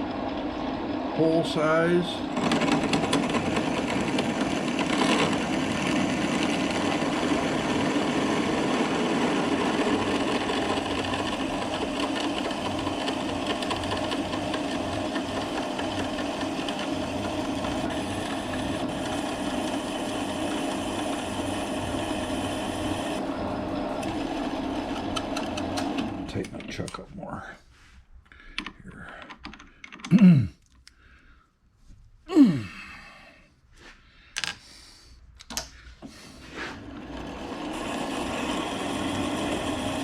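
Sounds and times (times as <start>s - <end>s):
drill bit boring metal: 0.0s - 26.6s, 37.0s - 40.0s
metal lathe running: 0.0s - 26.7s, 36.8s - 40.0s.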